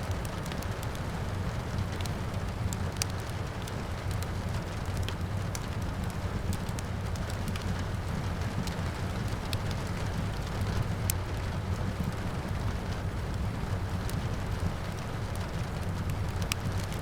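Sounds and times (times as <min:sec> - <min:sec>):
fireplace crackling and popping: 0:00.0 - 0:17.0
rain: 0:00.0 - 0:17.0.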